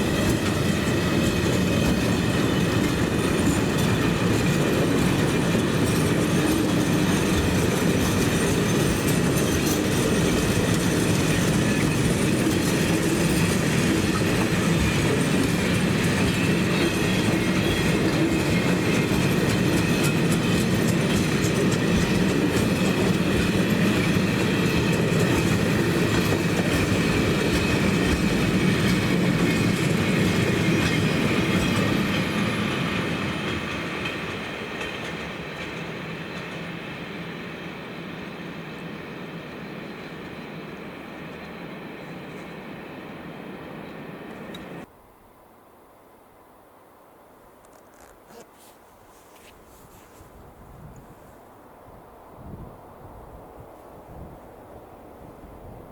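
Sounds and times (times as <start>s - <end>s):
train rolling on rails: 0.0s - 48.1s, 49.0s - 55.9s.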